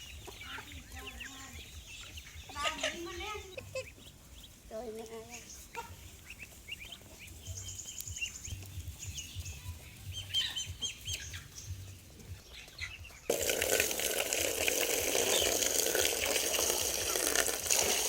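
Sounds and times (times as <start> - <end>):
ducklings peeping: 0.0 - 18.0
running water rushing: 13.3 - 18.0.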